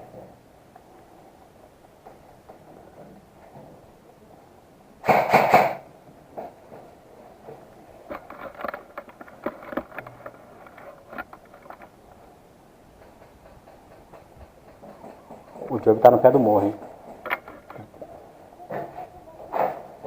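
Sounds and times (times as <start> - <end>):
rapid airsoft gun fire: 5.0 - 5.9.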